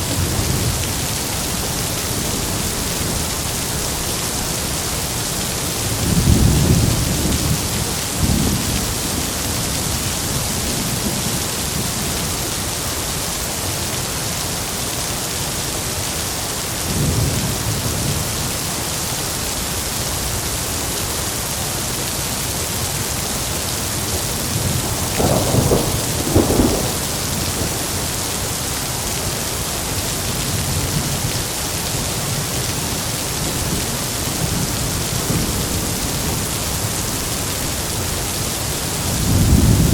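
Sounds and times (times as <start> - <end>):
heavy rain falling: 0.0 - 39.9
thunder rumbling: 23.9 - 31.5, 32.2 - 39.9
sharp thunder claps: 24.6 - 28.2.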